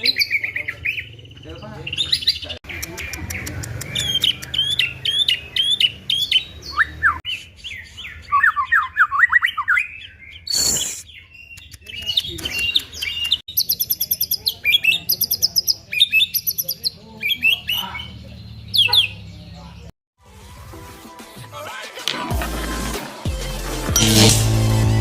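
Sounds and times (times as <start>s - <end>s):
bird singing varied song: 0.0s - 19.9s.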